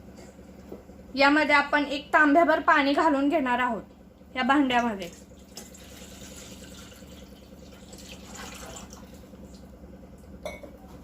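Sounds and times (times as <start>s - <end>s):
water pouring into a pot: 5.2s - 9.3s.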